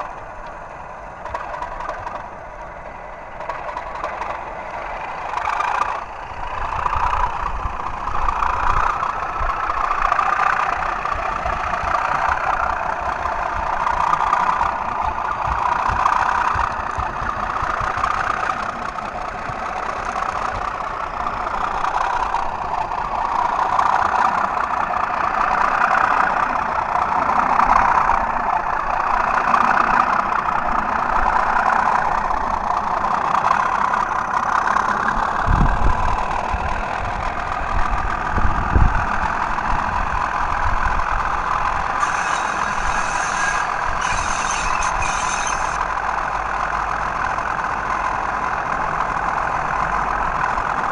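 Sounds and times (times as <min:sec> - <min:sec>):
diesel engine sound through small speakers: 0:00.0 - 0:50.9.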